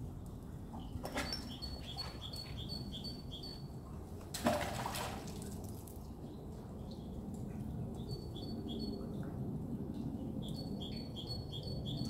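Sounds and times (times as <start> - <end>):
small bird singing: 1.3 - 3.6, 10.4 - 12.0.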